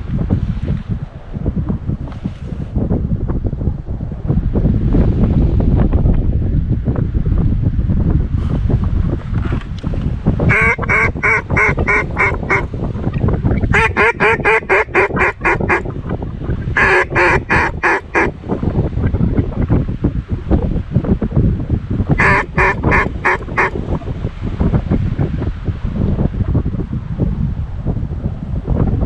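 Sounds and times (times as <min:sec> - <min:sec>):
wind buffeting the microphone: 0:00.0 - 0:29.0
duck call quacks: 0:10.5 - 0:12.7, 0:13.7 - 0:15.8, 0:16.8 - 0:18.3, 0:22.2 - 0:23.8.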